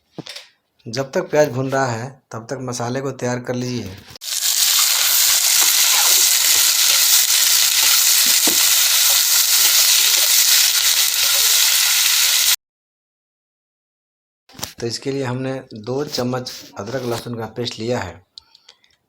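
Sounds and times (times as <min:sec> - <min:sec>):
onions sizzling in hot oil: 0:04.2 - 0:12.6.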